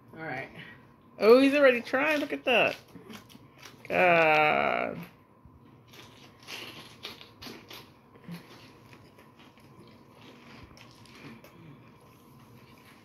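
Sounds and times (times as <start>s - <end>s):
faint biting and chewing: 2.7s - 3.9s, 5.7s - 13.0s.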